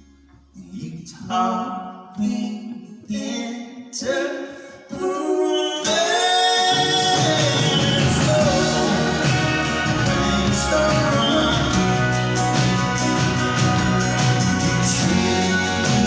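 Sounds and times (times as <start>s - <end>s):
person singing: 4.1s - 16.0s
live band music: 6.0s - 16.0s
bass and drums: 6.8s - 16.0s.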